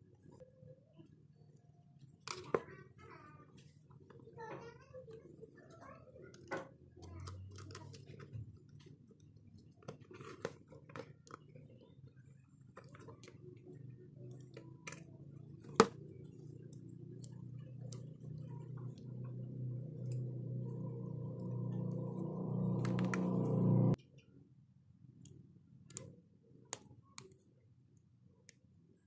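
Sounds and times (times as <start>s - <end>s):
low steady hum: 5.0s - 26.2s
small clicks and taps: 25.2s - 26.1s.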